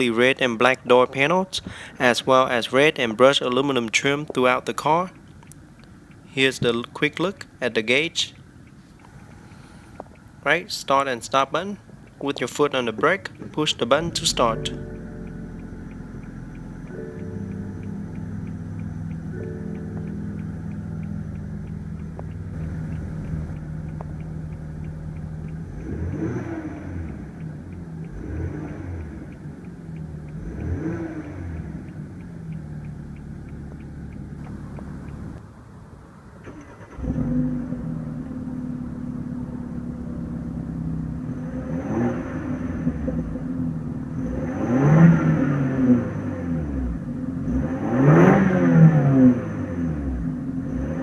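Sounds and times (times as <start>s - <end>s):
car engine idling and revving: 11.8s - 51.0s.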